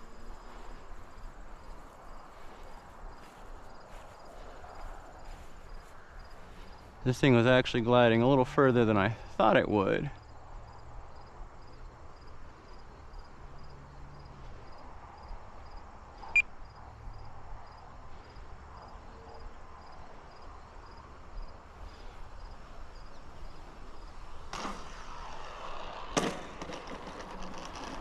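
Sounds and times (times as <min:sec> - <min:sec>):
cricket chirping: 0:00.0 - 0:06.9, 0:10.2 - 0:24.4.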